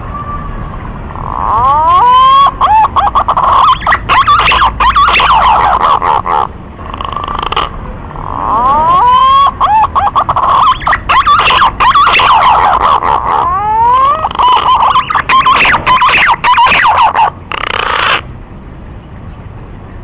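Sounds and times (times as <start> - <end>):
whistled bird call: 1.6 - 5.8, 8.7 - 13.0, 13.8 - 17.3.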